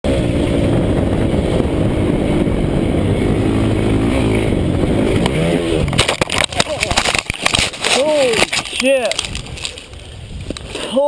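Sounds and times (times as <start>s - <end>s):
dirt bike engine running: 0.0s - 10.5s
wind rush: 0.0s - 11.0s.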